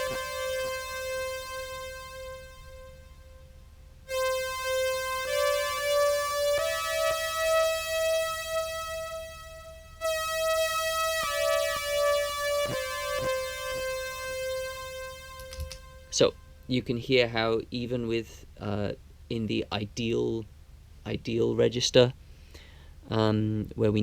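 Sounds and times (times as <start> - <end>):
synth playing sustained notes: 0.0 - 16.7
small clicks: 15.3 - 15.9.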